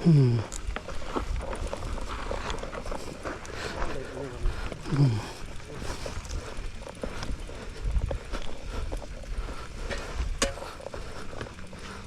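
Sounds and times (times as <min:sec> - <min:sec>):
bicycle rattles and clicks: 0:00.1 - 0:12.0
wind rumble on microphone: 0:00.4 - 0:03.6, 0:05.4 - 0:11.6.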